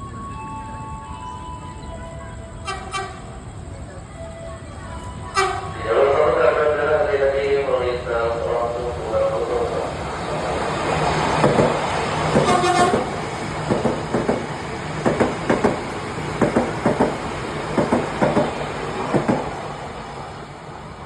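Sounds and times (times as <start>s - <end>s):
train running: 0.0s - 21.0s
train horn toot: 2.6s - 3.4s, 5.3s - 6.2s, 12.3s - 13.3s
train wheels clacking: 10.4s - 19.8s.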